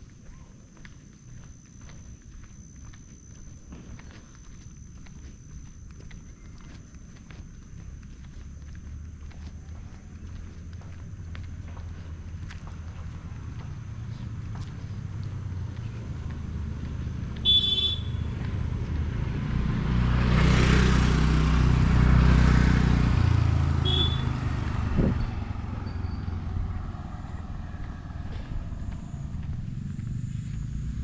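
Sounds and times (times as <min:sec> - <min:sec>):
vehicle passing by: 0:05.8 - 0:31.0
short horn toot: 0:17.4 - 0:18.2, 0:23.8 - 0:24.4.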